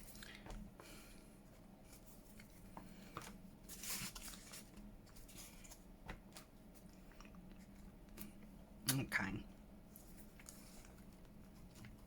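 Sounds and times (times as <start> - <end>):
paper rustling: 1.9 - 7.0, 9.9 - 12.0.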